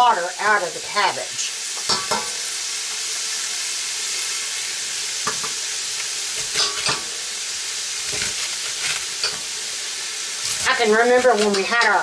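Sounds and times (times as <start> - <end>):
cabbage sizzling in a pan: 0.0 - 12.0
knife knocking and scraping a pan: 6.4 - 7.1, 8.0 - 9.5, 10.4 - 12.0.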